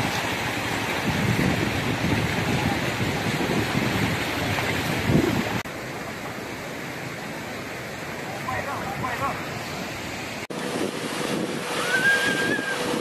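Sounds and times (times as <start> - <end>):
wind buffeting microphone: 0.0 - 5.7, 8.8 - 13.0
river water rushing: 0.0 - 13.0.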